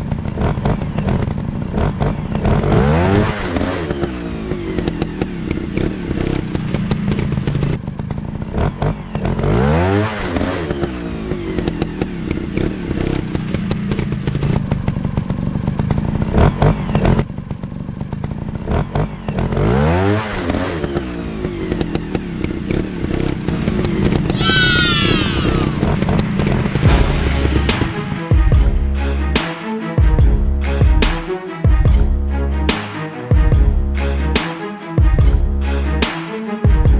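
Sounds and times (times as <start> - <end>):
dirt bike engines revving: 0.0 - 27.8.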